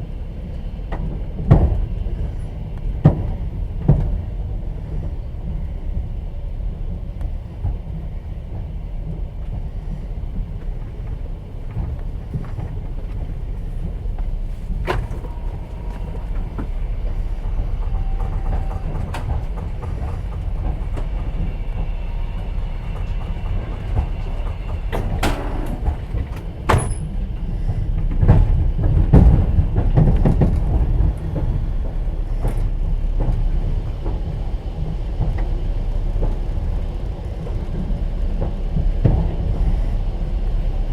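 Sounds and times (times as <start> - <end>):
train wheels rumbling on rails: 0.0 - 40.9
sharp clicks and knocks: 14.2 - 33.4.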